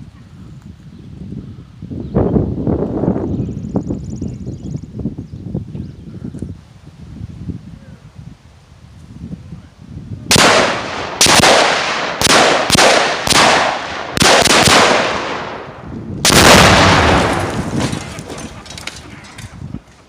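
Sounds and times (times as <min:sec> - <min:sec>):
rifle shots: 0:10.3 - 0:17.9
explosion with rolling echo: 0:10.3 - 0:18.4.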